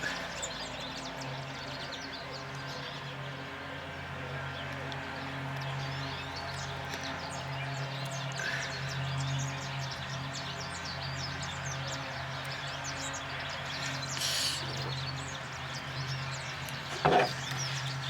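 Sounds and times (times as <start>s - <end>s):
small birds chirping: 4.6s - 18.0s
short hiss: 14.2s - 14.7s.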